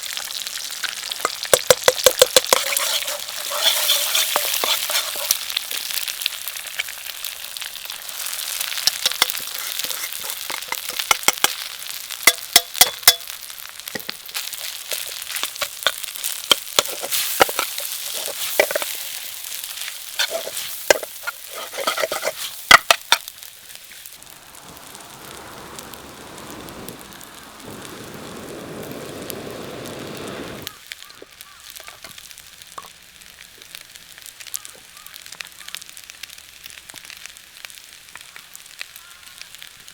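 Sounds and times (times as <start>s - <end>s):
food sizzling in a pan: 0.0s - 39.9s
utensil clacking against pan: 1.2s - 5.4s, 8.8s - 11.6s, 12.3s - 13.3s, 14.0s - 19.0s, 20.2s - 23.3s.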